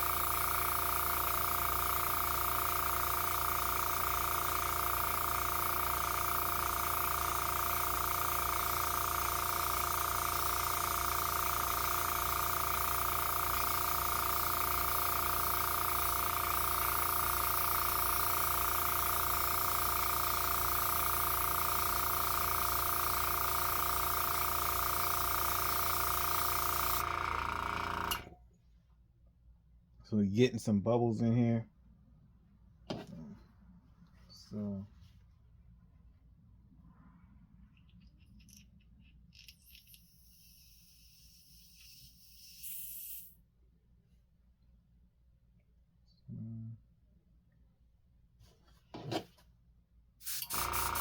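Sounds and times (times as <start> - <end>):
air hissing through airbrush: 0.0 - 27.1, 39.6 - 43.4, 50.2 - 51.0
airbrush compressor motor hum: 0.0 - 28.4, 50.3 - 51.0.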